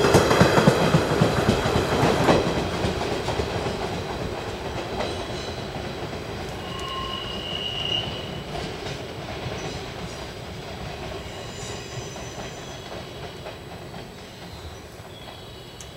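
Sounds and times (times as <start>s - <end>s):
train wheels rolling on rails: 0.0s - 15.9s
high-pitched wheel squeal: 6.6s - 8.4s.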